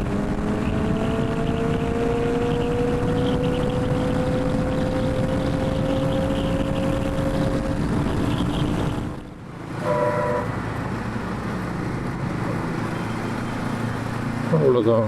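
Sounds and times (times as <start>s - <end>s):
motorcycle engine running: 0.0s - 11.1s
wind and road noise: 0.0s - 15.0s.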